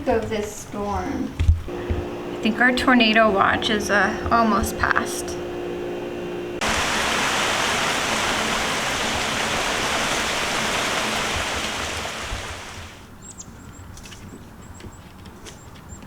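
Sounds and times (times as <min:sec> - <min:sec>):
heavy rain pouring: 0:06.6 - 0:13.0.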